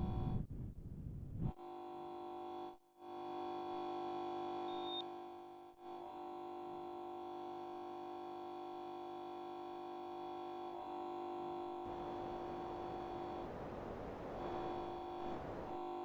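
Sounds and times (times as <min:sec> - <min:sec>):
air conditioner hum and whine: 0:00.0 - 0:01.5, 0:11.9 - 0:16.0.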